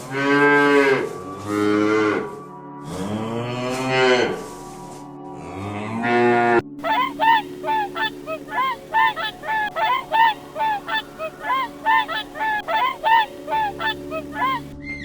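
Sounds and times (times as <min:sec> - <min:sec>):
goose honking: 0:06.8 - 0:14.7.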